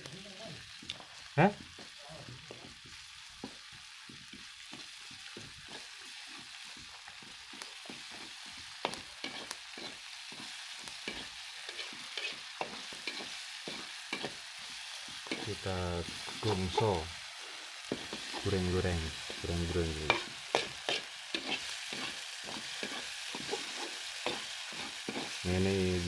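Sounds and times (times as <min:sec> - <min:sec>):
food sizzling in oil: 0:00.0 - 0:26.0
spatula scraping wok: 0:02.7 - 0:26.0.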